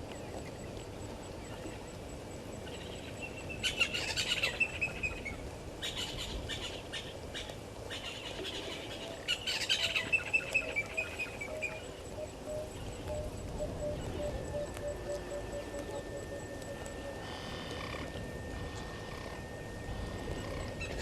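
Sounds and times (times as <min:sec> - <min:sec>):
bird repeating lower note: 0:09.8 - 0:21.0.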